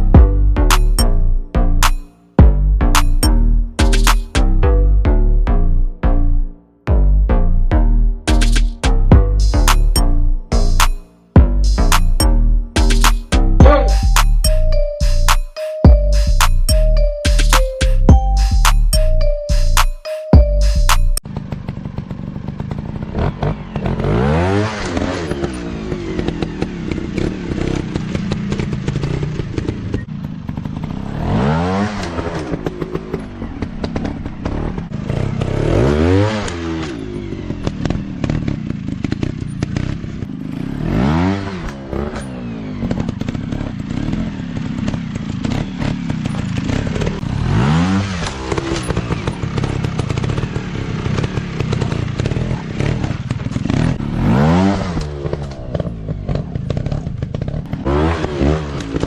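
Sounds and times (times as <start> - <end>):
dirt bike engines revving: 21.3 - 59.0.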